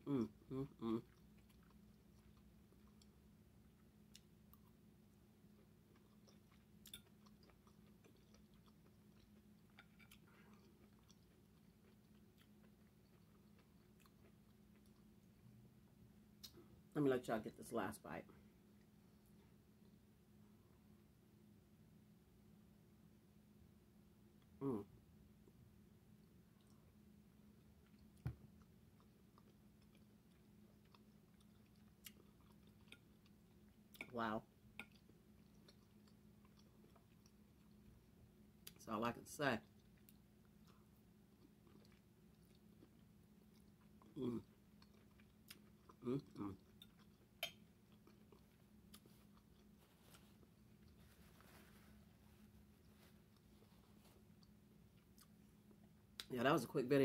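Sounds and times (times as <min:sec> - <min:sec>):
steady low hum: 0:00.0 - 0:57.0
soft chewing mouth clicks: 0:01.0 - 0:04.8, 0:05.5 - 0:15.5, 0:26.6 - 0:26.9, 0:27.6 - 0:34.1, 0:34.7 - 0:38.0, 0:39.6 - 0:51.7, 0:52.8 - 0:56.3.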